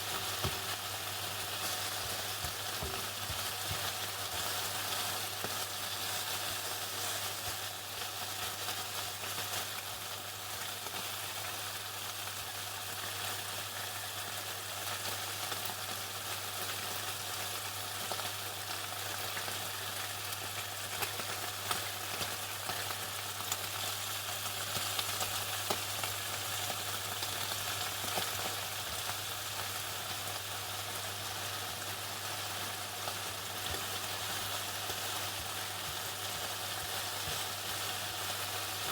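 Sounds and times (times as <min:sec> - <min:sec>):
chicken frying in hot oil: 0:00.0 - 0:38.9.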